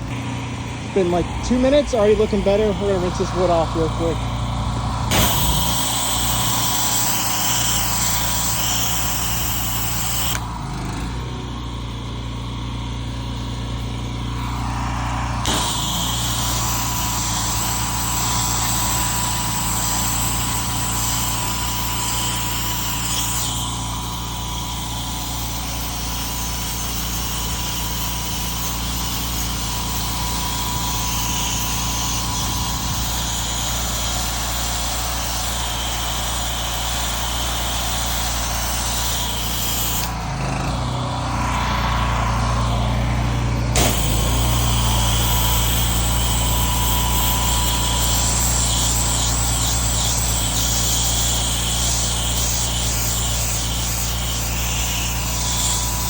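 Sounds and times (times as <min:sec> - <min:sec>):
pressure washer engine running: 0:00.0 - 0:56.0
high-pressure water spray hiss: 0:05.1 - 0:10.5, 0:14.2 - 0:40.2, 0:43.7 - 0:56.0.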